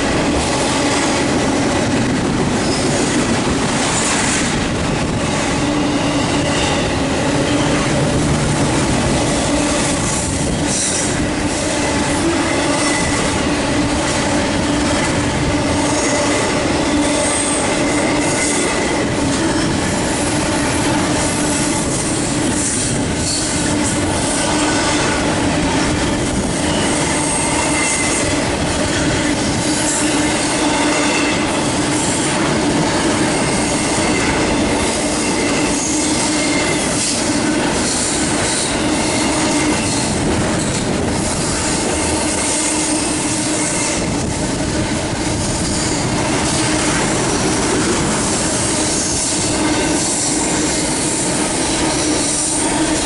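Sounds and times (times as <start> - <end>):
steel wheels rumbling on rail: 0.0 - 53.0
high-pitched wheel squeal: 35.2 - 37.2.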